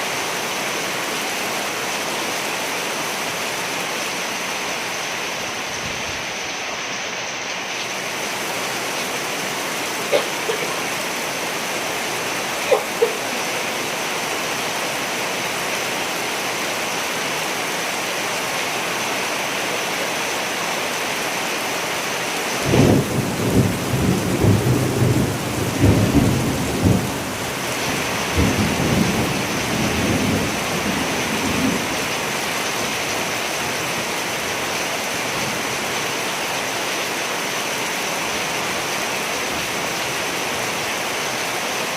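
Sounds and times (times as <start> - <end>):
rain hissing: 0.0 - 41.9
rolling thunder rumble: 22.6 - 32.0.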